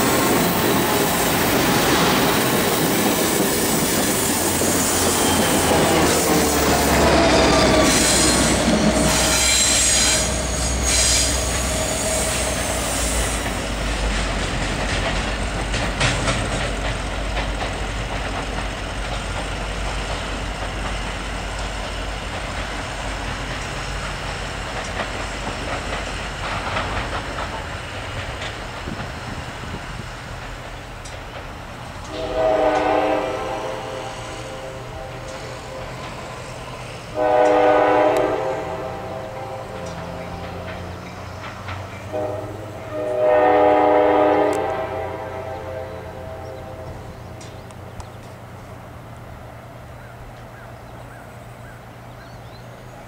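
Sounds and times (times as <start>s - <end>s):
train rumble: 0.0s - 53.0s
wheels squealing and clattering: 2.8s - 16.9s
train horn blowing: 4.3s - 13.6s, 32.0s - 36.4s, 37.1s - 41.0s, 42.0s - 47.4s.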